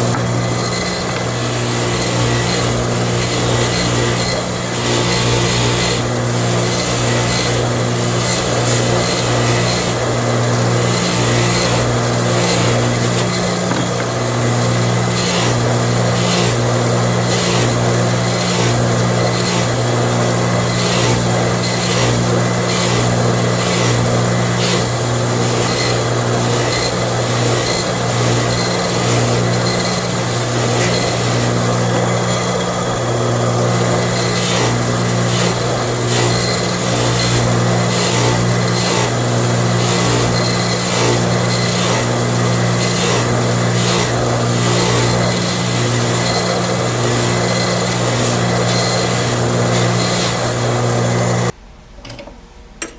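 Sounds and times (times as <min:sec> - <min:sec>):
power tool motor running: 0:00.0 - 0:51.5.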